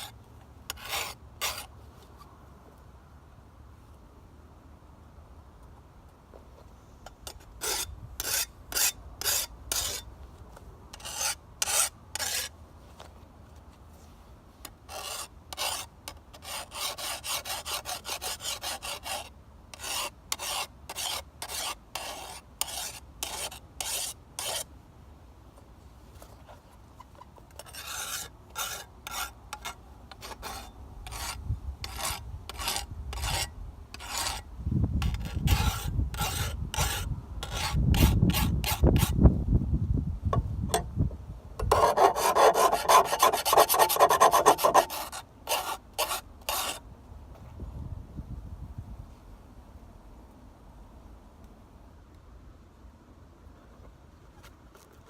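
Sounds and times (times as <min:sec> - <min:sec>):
file scraping steel blade: 0:00.0 - 0:01.7, 0:07.2 - 0:10.1, 0:10.9 - 0:12.5, 0:14.6 - 0:24.7, 0:27.5 - 0:39.2, 0:41.6 - 0:46.8.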